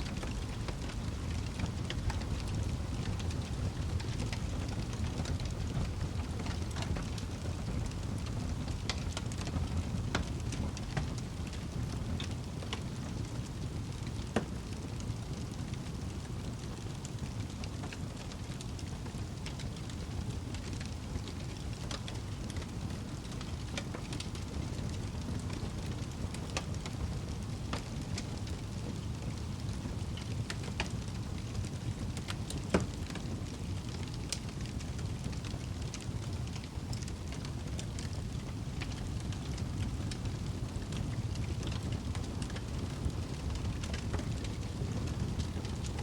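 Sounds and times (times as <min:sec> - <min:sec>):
fire crackling in fireplace: 0:00.0 - 0:46.0.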